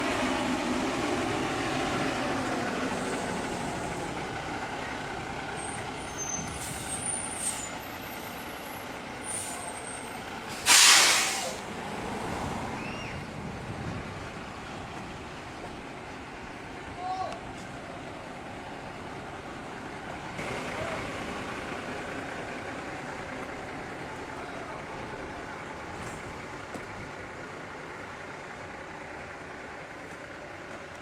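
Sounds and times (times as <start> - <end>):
heavy vehicle engine running: 0.0 - 31.0
air brake hiss: 6.4 - 7.8, 9.2 - 9.8, 10.5 - 11.7.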